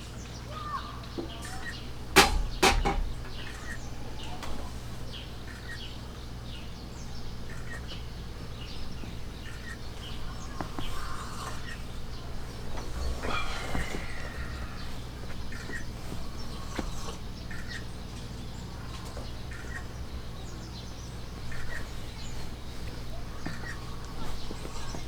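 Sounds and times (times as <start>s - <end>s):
small birds chirping: 0.0s - 25.0s
sharp knocks: 2.2s - 3.4s.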